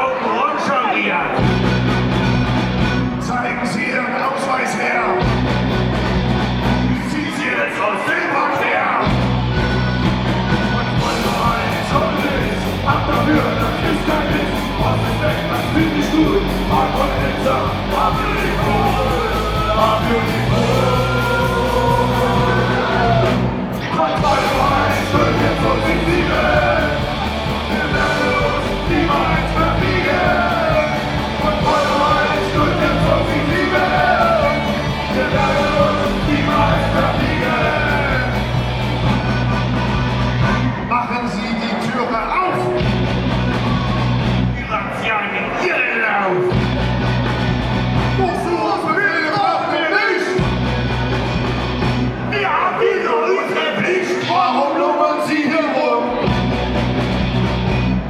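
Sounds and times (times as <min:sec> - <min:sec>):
live band playing: 0:01.2 - 0:07.6, 0:09.0 - 0:45.7, 0:46.3 - 0:53.0, 0:55.7 - 0:58.0
prominent bass line: 0:01.4 - 0:03.2, 0:05.2 - 0:07.0, 0:09.1 - 0:40.8, 0:42.8 - 0:44.6, 0:46.5 - 0:48.3, 0:50.4 - 0:52.3, 0:56.2 - 0:58.0
lead vocalist singing: 0:10.5 - 0:43.0.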